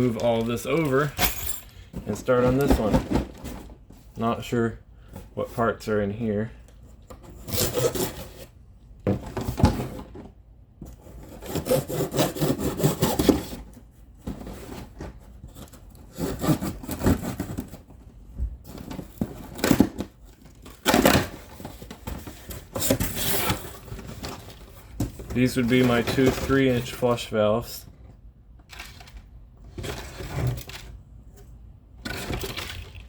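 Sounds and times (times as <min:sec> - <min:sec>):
cardboard box scraping and tearing: 0:07.3 - 0:08.5, 0:11.2 - 0:13.7, 0:14.3 - 0:17.8, 0:22.6 - 0:24.6.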